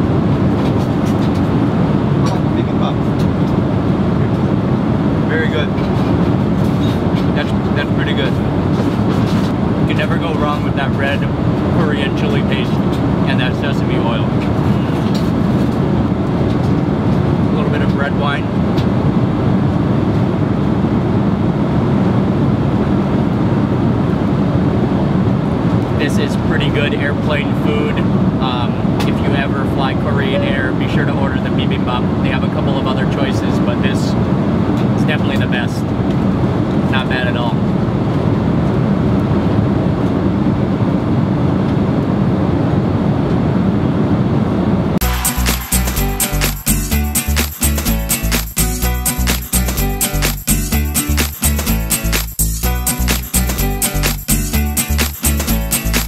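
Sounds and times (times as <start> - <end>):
airliner cabin engine noise: 0.0 - 46.7
music with a beat: 45.0 - 56.0.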